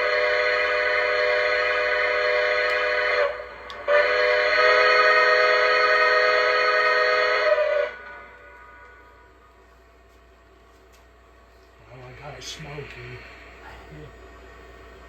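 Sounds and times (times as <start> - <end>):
model train steam whistle: 0.0 - 9.4.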